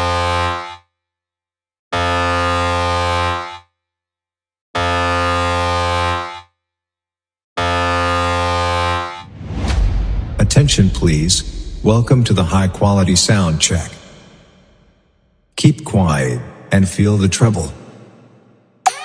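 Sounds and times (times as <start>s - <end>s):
deep air horn blasts: 0.0s - 0.9s, 2.0s - 3.7s, 4.8s - 6.5s, 7.6s - 15.0s.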